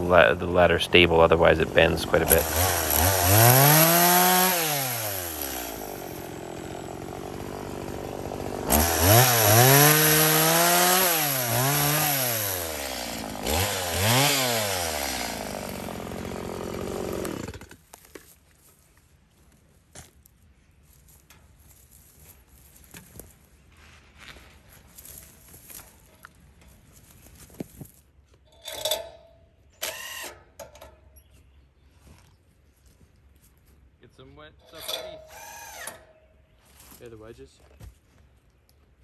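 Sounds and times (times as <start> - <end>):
chainsaw revving and idling: 0.0 - 17.8.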